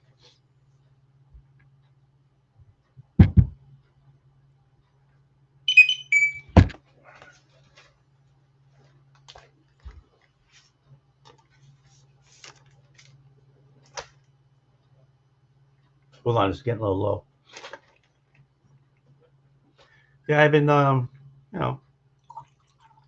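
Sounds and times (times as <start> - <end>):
heavy thumps on table: 3.2 - 3.6
high ringing chime: 5.7 - 6.5
faint clicks and rustles: 6.8 - 15.1, 17.4 - 20.1.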